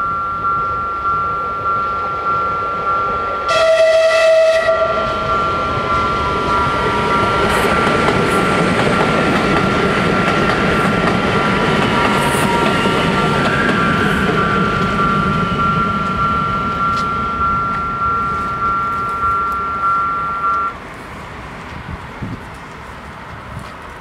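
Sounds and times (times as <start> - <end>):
level-crossing warning bells: 0.0 - 20.8
train wheels rolling on rails: 0.0 - 24.0
train horn blast: 3.5 - 5.3.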